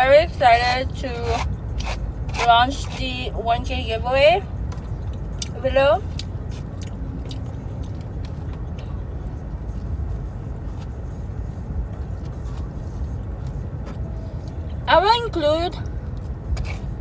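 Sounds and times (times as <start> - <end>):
air-conditioning fan blowing: 0.0 - 17.0
car engine idling: 0.0 - 17.0
chewing clicks: 4.7 - 9.0.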